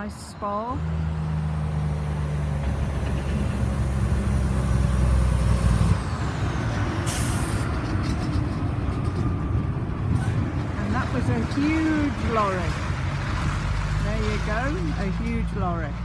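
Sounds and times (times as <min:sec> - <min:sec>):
heavy lorry passing: 0:00.0 - 0:16.0.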